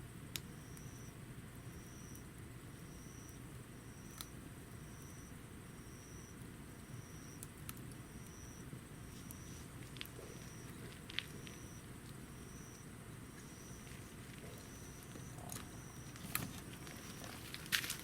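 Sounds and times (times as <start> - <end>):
wood stove burning: 6.4 - 18.0
fire crackles: 8.8 - 18.0.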